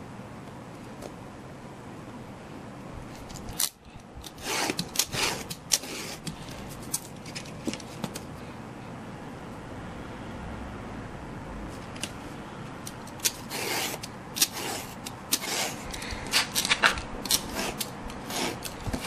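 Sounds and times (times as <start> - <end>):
utility knife cutting: 3.5 - 7.1, 12.8 - 19.0.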